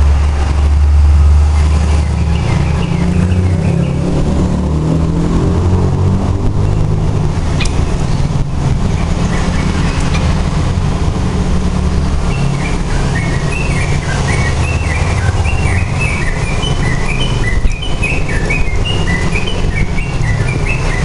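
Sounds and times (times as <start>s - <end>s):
bulbul singing chirping notes: 1.5s - 4.1s, 12.2s - 21.0s.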